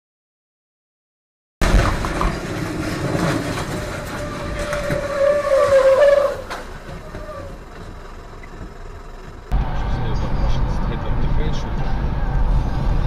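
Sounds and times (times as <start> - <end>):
road traffic noise: 1.6 - 13.0
tyre squeal: 2.8 - 7.8.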